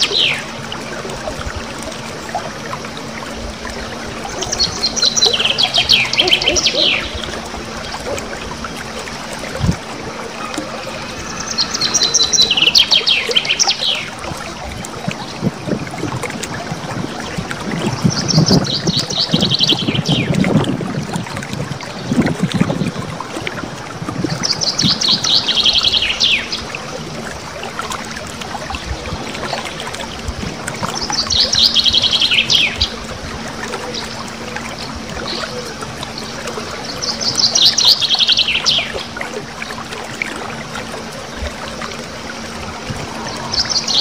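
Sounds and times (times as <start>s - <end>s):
songbird trilling: 0.0s - 0.5s, 4.2s - 8.0s, 10.4s - 14.2s.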